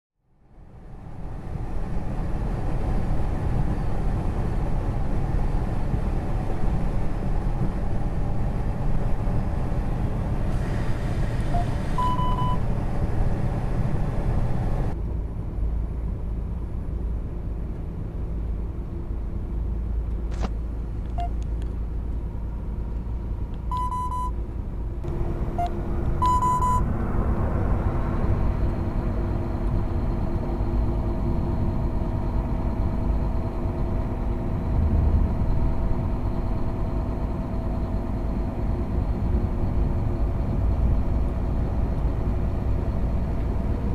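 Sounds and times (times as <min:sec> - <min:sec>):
engine and road rumble: 0:00.2 - 0:43.9
short electronic beep: 0:11.5 - 0:12.6, 0:23.7 - 0:24.4, 0:25.6 - 0:26.9.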